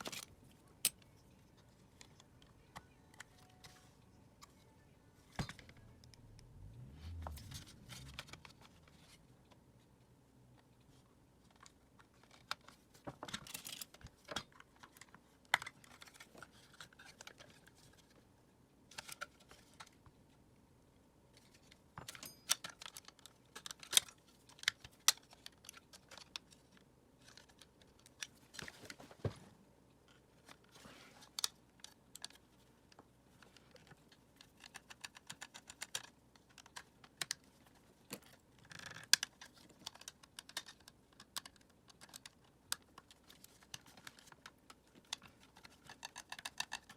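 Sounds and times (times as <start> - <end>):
plastic parts clicking and rattling: 0.0 - 3.8, 7.1 - 9.6, 11.4 - 18.2, 18.9 - 20.0, 21.3 - 29.3, 30.0 - 46.9.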